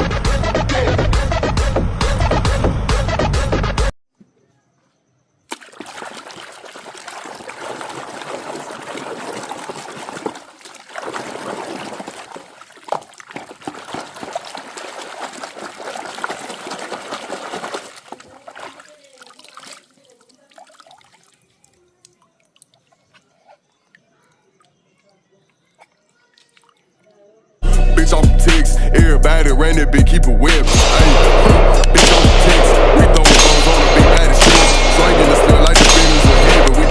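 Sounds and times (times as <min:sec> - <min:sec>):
water running over toys: 0:05.5 - 0:23.1, 0:24.0 - 0:27.3.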